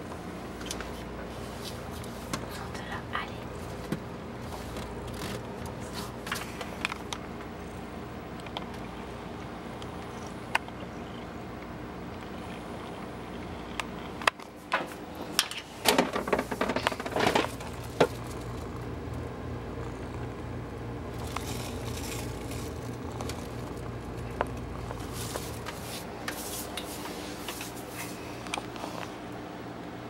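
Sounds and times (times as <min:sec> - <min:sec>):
low appliance hum: 0:00.0 - 0:30.0.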